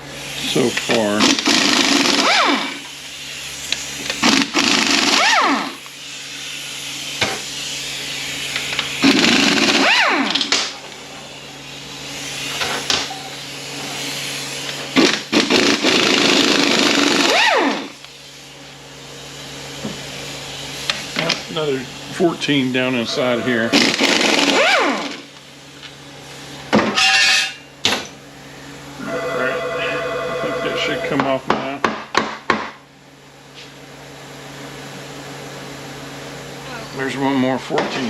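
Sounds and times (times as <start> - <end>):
air hiss: 0.2 - 9.7
power wrench whirring: 0.4 - 11.3, 12.0 - 18.1, 22.9 - 25.4.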